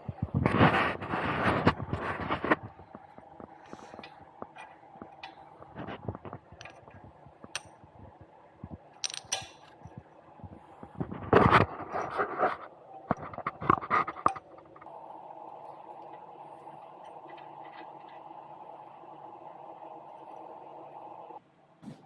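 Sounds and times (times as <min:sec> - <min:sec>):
steady hum: 0:00.0 - 0:22.0
metal parts clinking: 0:09.0 - 0:09.8.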